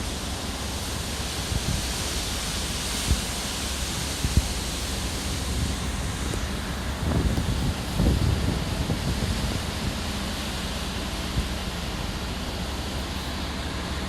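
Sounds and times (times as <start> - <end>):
sea rushing: 0.0 - 14.0
wind rushing over microphone: 1.4 - 1.9, 3.0 - 11.8
wind buffeting microphone thumps: 3.0 - 11.8.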